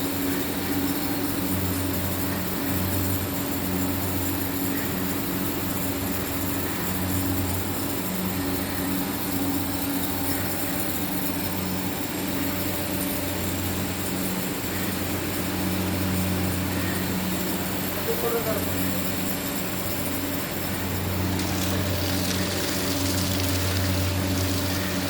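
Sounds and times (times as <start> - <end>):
even hiss: 0.0 - 25.0
low motor hum: 5.8 - 25.0.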